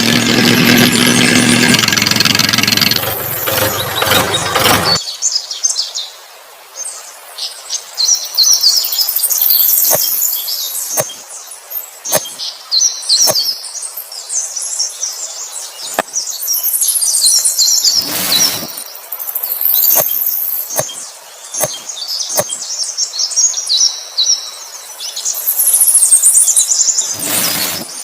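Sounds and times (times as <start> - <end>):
small birds chirping: 0.0 - 5.9, 6.8 - 28.0
sharp clicks: 0.4 - 5.0, 12.1 - 12.4, 19.8 - 21.0, 21.6 - 22.6.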